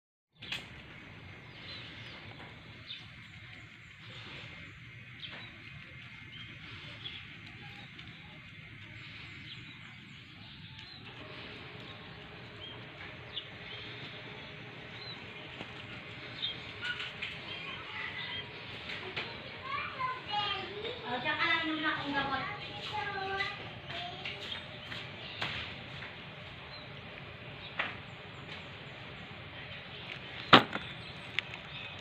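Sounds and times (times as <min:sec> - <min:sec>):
steady low rumble: 0:00.5 - 0:20.6.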